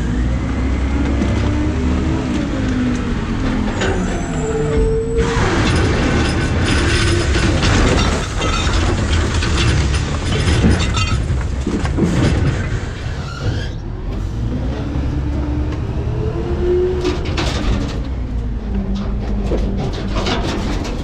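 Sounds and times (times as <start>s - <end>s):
hydraulic packer running: 0.0s - 21.0s
trash crunching and cracking: 5.2s - 13.8s.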